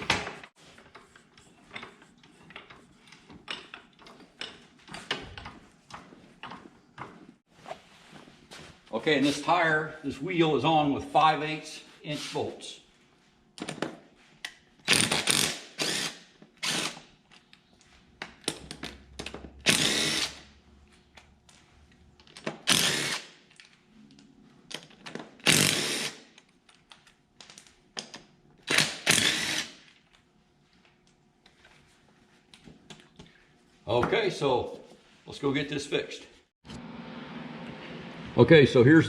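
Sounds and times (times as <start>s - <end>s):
power tool bursts: 14.9s - 17.1s, 19.6s - 20.5s, 22.6s - 23.3s, 25.4s - 26.3s, 28.7s - 29.8s.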